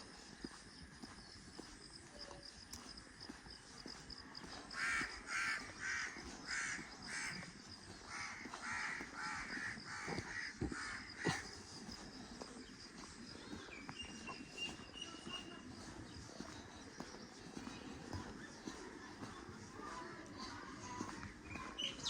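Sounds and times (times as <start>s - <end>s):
crow cawing: 8.1s - 11.3s.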